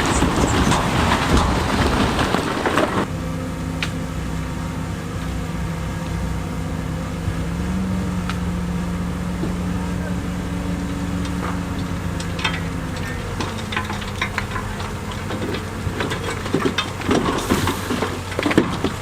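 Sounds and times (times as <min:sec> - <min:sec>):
rough clattering with sharp knocks: 0:00.0 - 0:03.1, 0:10.8 - 0:19.0
heavy diesel engine running: 0:00.0 - 0:19.0.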